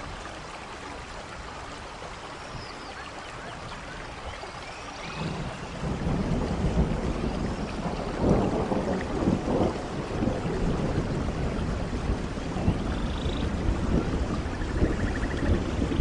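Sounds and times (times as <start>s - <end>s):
rain falling: 0.0s - 16.0s
low rumble of thunder: 5.0s - 16.0s.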